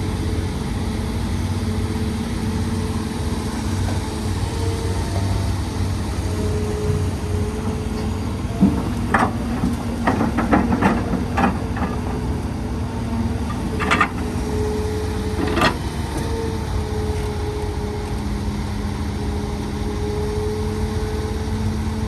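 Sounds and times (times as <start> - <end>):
excavator diesel engine running: 0.0 - 22.0
hydraulic hum: 0.0 - 22.0
metal clanks and knocks: 2.9 - 16.3.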